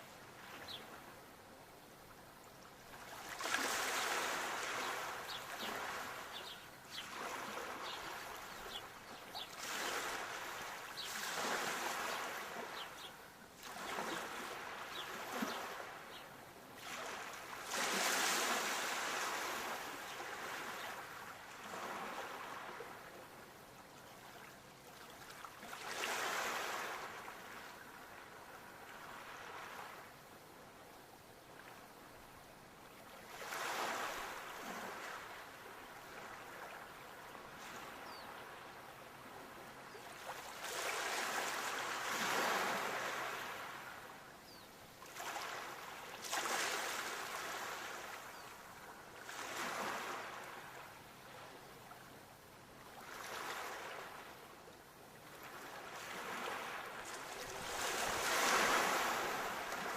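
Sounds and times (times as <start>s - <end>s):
sea waves washing in: 3.1s - 8.8s, 16.8s - 23.0s, 45.2s - 48.2s, 55.9s - 59.9s.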